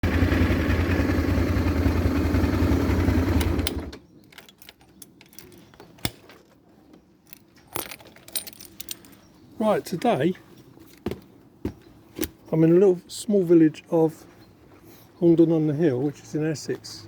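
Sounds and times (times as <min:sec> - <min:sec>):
vehicle engine running: 0:00.0 - 0:03.9.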